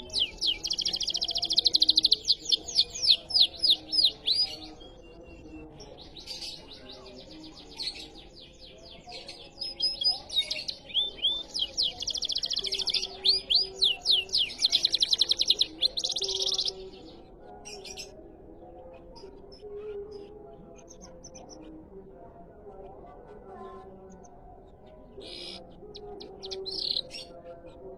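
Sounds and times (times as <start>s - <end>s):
canary trilling song: 0.0s - 18.2s, 25.2s - 27.3s.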